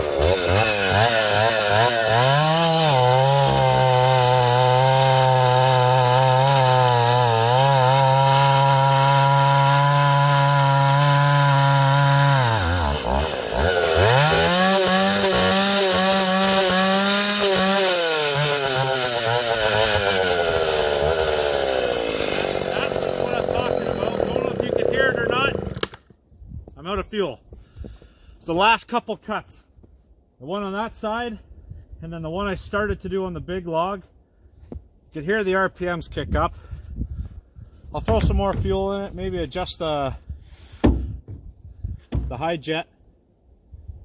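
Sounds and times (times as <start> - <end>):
chainsaw cutting wood: 0.0 - 26.1, 40.8 - 41.3.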